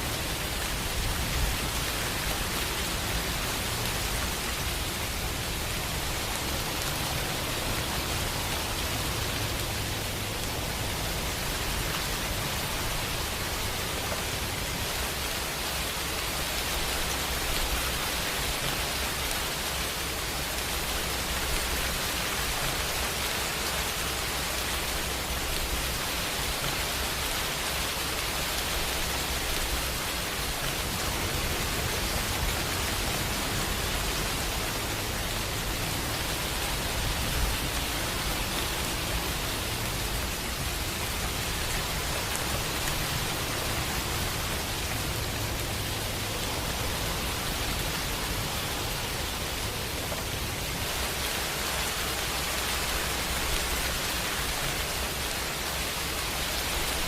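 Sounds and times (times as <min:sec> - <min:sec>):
dense rain hiss: 0:00.0 - 0:57.0.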